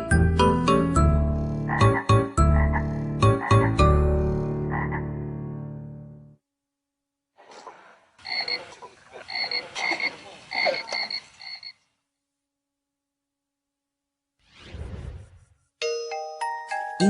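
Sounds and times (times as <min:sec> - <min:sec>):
frogs croaking: 0:01.3 - 0:05.2, 0:08.2 - 0:12.0.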